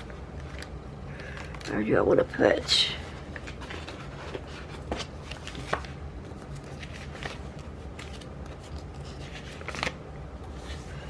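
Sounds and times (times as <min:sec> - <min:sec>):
paper pages rustling: 0:03.0 - 0:11.0.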